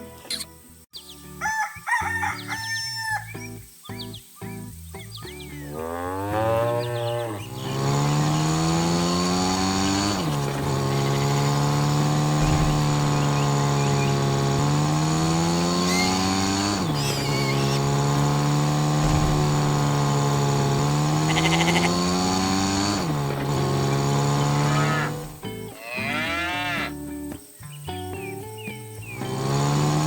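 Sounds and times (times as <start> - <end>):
harvester engine revving: 6.2 - 25.7, 29.1 - 30.0.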